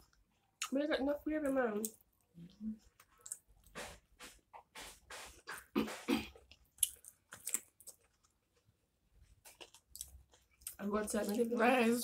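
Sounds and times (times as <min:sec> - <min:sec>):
chewing and mouth noises: 0:04.6 - 0:08.7, 0:09.3 - 0:11.6.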